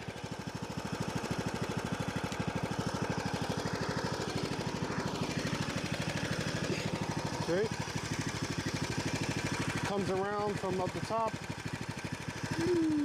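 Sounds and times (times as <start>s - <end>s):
riding mower engine running: 0.0s - 13.0s.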